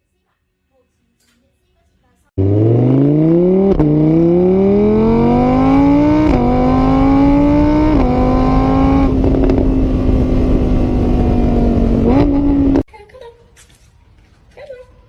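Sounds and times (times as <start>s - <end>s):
vehicle engine accelerating: 2.4s - 12.9s.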